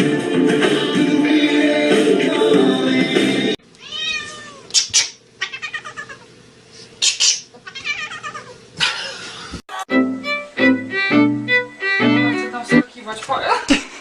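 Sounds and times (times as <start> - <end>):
cat meowing: 3.8 - 4.8, 5.4 - 6.3, 7.6 - 8.6.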